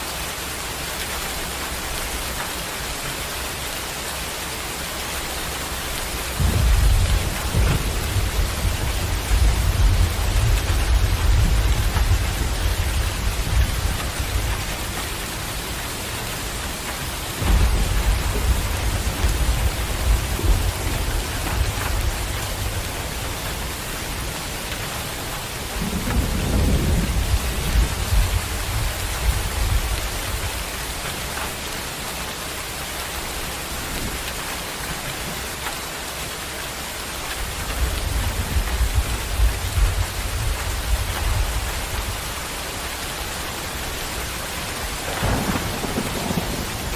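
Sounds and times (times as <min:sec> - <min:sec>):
heavy rain pouring: 0:00.0 - 0:46.9
low rumbles: 0:05.9 - 0:31.6.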